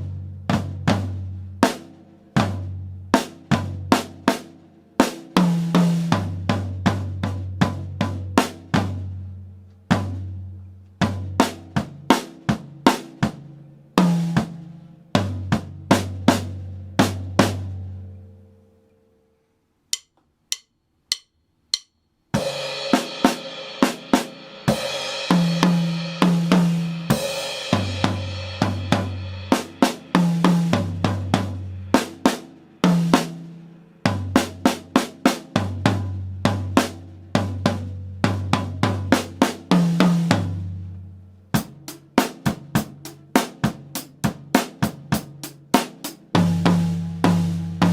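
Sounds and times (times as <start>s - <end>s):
drum kit playing: 0.0s - 9.3s, 9.9s - 17.8s, 19.9s - 47.9s
count-in clicks: 19.9s - 22.2s.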